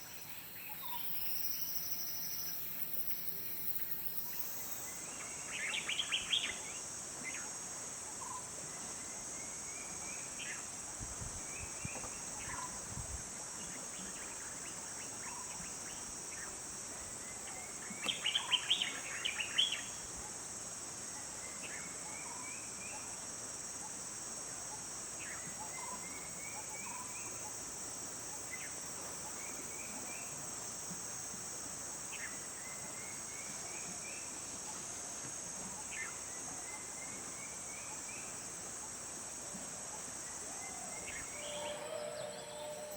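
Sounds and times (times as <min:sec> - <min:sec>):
high-pitched insect drone: 0:00.0 - 0:05.0, 0:41.0 - 0:42.9
bird singing rising notes: 0:41.3 - 0:42.9.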